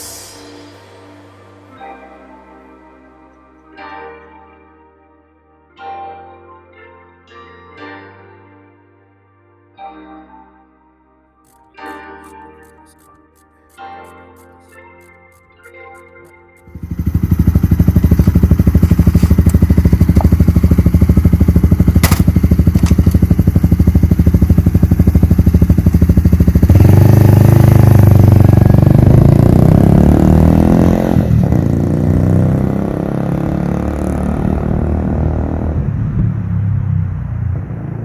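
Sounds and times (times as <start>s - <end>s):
vehicle engine running loudly: 16.7s - 38.0s.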